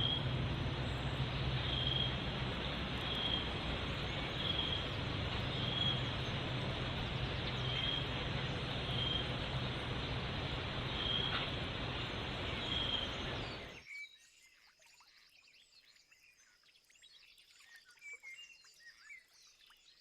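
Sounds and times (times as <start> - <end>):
background hiss: 0.0 - 13.7
low hum: 0.0 - 13.8.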